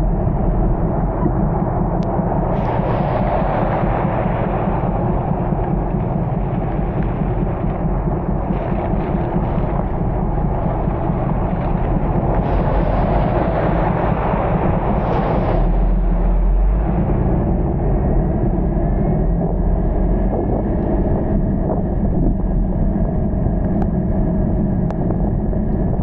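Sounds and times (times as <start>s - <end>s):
road and rain noise: 0.0s - 18.7s
vehicle rumbling in heavy rain: 0.0s - 21.6s.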